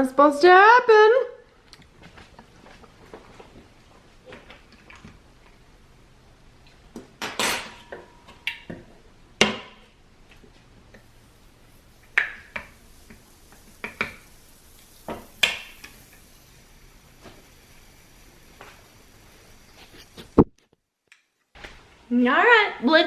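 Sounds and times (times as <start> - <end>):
dishes clinking: 7.2 - 8.8.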